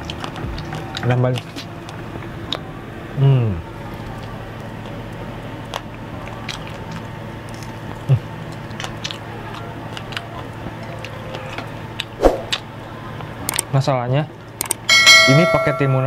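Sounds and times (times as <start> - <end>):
person chewing: 0.0 - 2.7, 3.9 - 12.6
bite taken: 5.7 - 12.7, 13.5 - 13.7
mouth clicks and smacks: 13.5 - 13.7.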